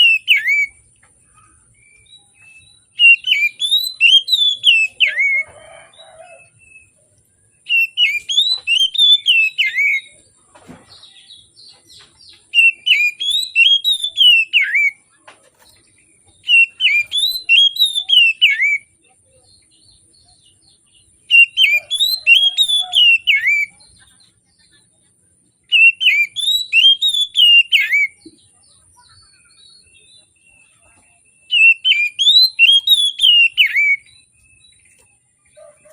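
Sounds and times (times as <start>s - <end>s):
magpie-robin singing whistled phrases: 0.0s - 0.8s, 1.8s - 5.5s, 7.6s - 10.2s, 12.4s - 15.0s, 16.4s - 19.0s, 21.3s - 23.9s, 25.7s - 28.3s, 29.0s - 35.0s.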